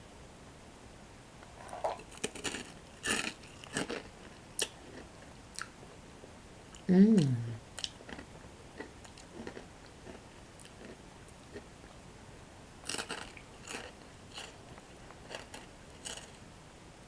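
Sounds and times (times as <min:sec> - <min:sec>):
chewing crunchy bread sticks: 0:01.7 - 0:05.8, 0:07.8 - 0:11.7, 0:12.8 - 0:16.4.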